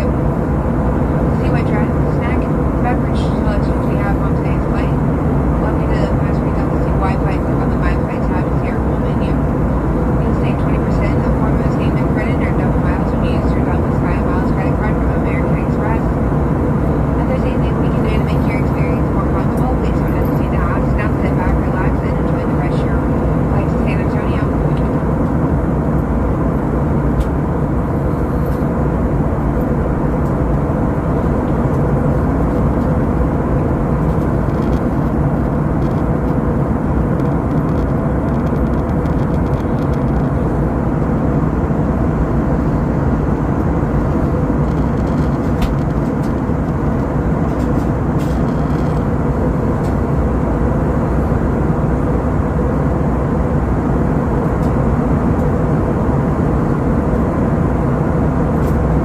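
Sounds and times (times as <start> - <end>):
jet engine cabin rumble: 0.0 - 59.0.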